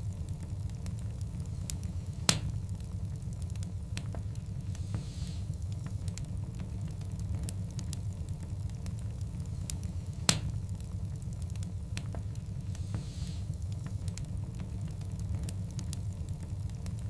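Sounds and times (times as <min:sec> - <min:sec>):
fire low rumble: 0:00.0 - 0:17.0
wood fire crackling: 0:00.0 - 0:17.0
sharp pop of burning log: 0:02.2 - 0:02.6, 0:10.3 - 0:10.6.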